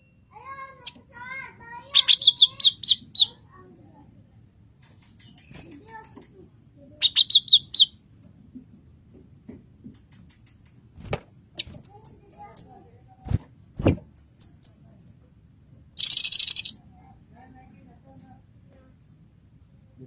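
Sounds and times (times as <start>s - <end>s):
bird singing: 1.9s - 3.4s, 7.0s - 8.0s, 11.6s - 12.8s, 14.2s - 14.8s, 16.0s - 16.8s.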